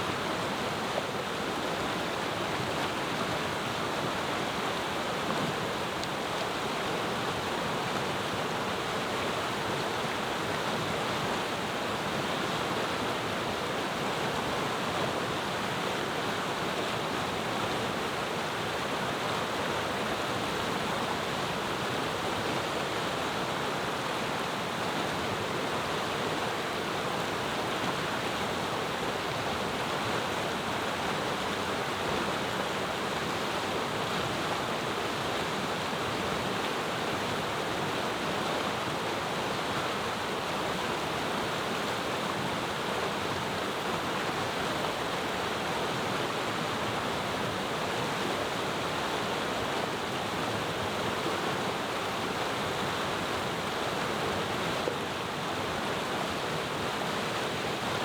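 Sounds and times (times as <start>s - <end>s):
river rushing: 0.0s - 58.0s.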